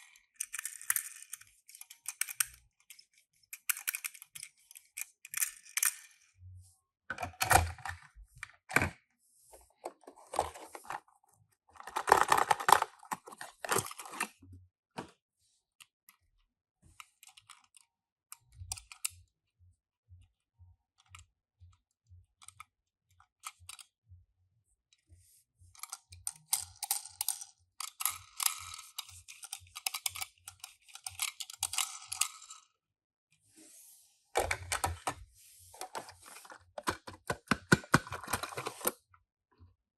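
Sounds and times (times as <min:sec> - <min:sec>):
toy cars clicking and tapping: 0:00.0 - 0:06.3, 0:25.8 - 0:32.7
plastic and cardboard crinkling: 0:09.6 - 0:11.1, 0:11.8 - 0:14.3, 0:34.4 - 0:39.0.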